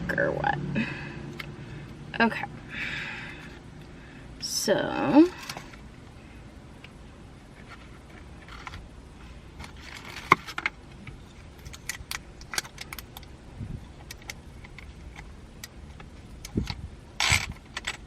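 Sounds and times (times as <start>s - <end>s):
small plastic parts clicking and rattling: 9.6s - 18.0s.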